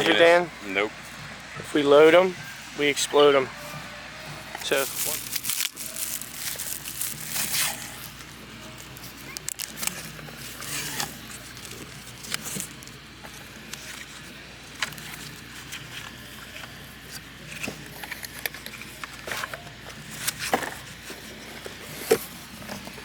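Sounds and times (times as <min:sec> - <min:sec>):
paper rustling: 0:04.6 - 0:23.0.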